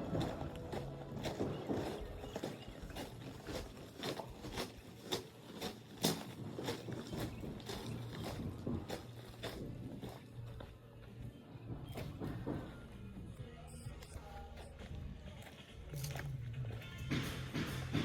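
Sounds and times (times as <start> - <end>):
footsteps walking: 0.0 - 18.0.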